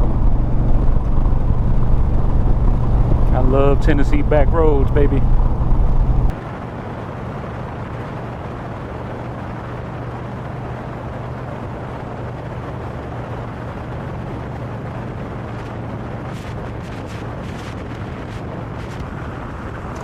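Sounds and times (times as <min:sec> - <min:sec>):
motorcycle engine running: 0:00.0 - 0:06.3
wind and road noise: 0:00.0 - 0:20.0
short crackles: 0:15.4 - 0:20.0.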